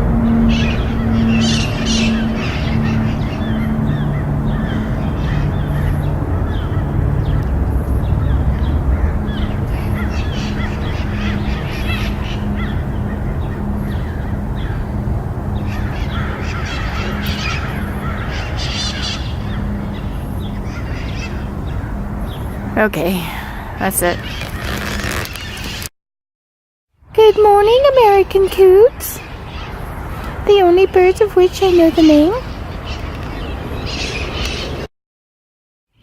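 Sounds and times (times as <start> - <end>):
steady low hum: 0.0 - 25.1
birds squawking: 0.0 - 25.9, 27.2 - 34.9.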